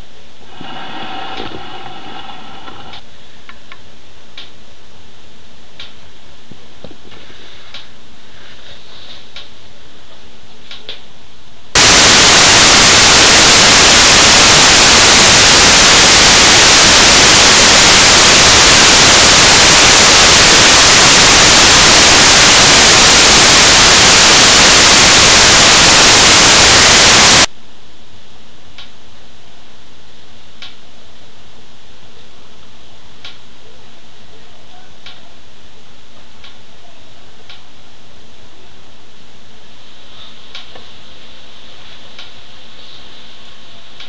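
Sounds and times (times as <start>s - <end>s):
static hiss: 0.0s - 9.8s, 11.5s - 34.4s.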